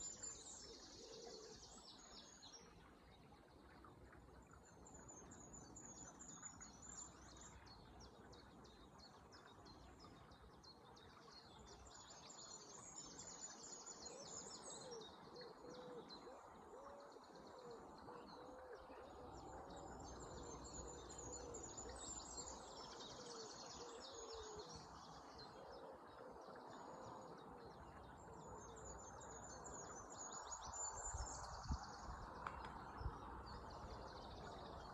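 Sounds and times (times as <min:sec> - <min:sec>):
low warbling bird song: 0:00.0 - 0:34.9
flowing water: 0:01.4 - 0:34.9
songbirds trilling: 0:13.3 - 0:34.9.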